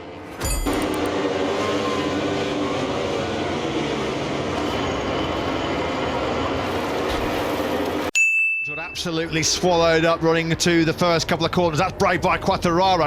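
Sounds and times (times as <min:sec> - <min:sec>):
racing motorcycles at full throttle: 0:00.4 - 0:06.3.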